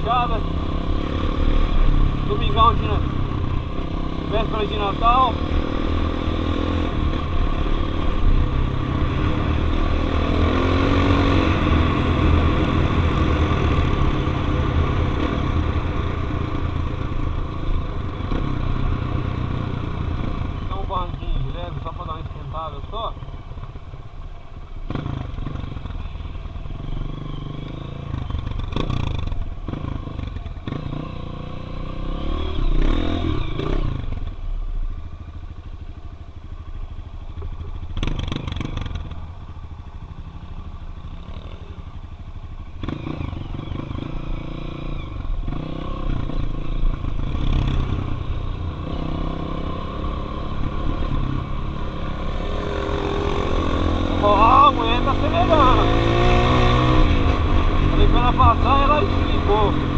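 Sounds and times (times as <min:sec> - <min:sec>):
dirt bike engine revving: 0:00.0 - 0:22.3, 0:26.7 - 0:34.2, 0:42.8 - 0:59.9.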